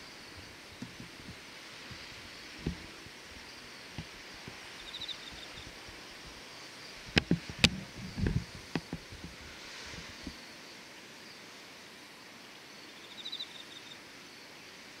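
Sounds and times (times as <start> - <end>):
faint steady hiss: 0.0 - 15.0
low bumps: 0.4 - 4.6.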